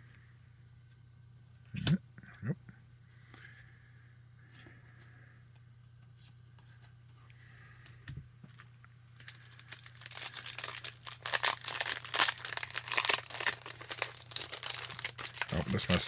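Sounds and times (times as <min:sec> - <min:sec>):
foil wrapper tearing and crinkling: 0:09.2 - 0:16.0.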